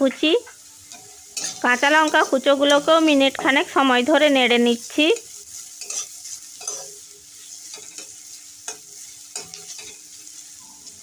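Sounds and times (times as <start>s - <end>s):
vegetables sizzling in oil: 0.0s - 11.0s
metal spatula scraping pan: 0.8s - 3.4s, 4.8s - 10.4s.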